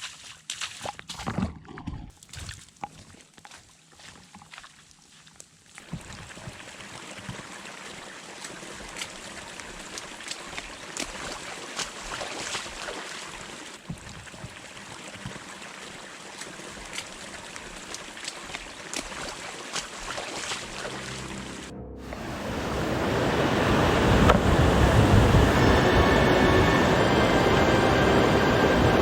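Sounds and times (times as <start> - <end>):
rain falling: 20.3 - 29.0.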